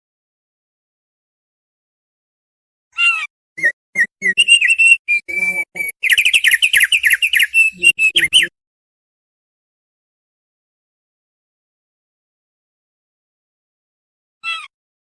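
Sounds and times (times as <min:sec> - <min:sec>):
bird singing whistled chirps: 0:03.6 - 0:08.5.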